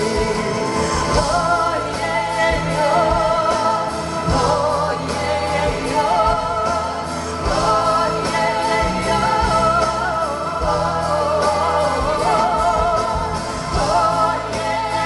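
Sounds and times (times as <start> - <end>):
person singing with vibrato: 0.0 - 15.0.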